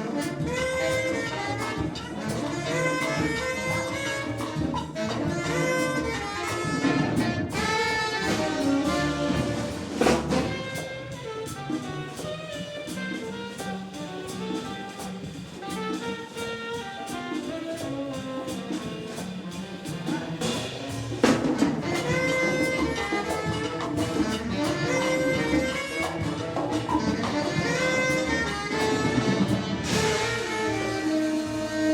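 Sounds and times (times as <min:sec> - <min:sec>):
jazz horns drums and bass: 0:00.0 - 0:31.9
cymbal crashes: 0:29.8 - 0:31.6.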